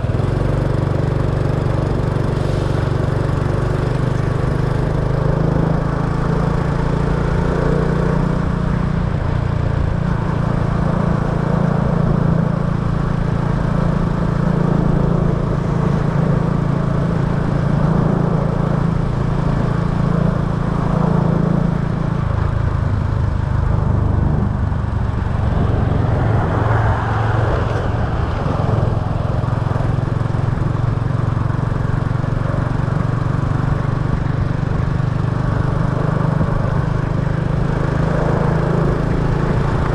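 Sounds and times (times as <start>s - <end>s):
road and wind noise: 0.0s - 39.9s
small motorbike engine running: 28.1s - 39.9s.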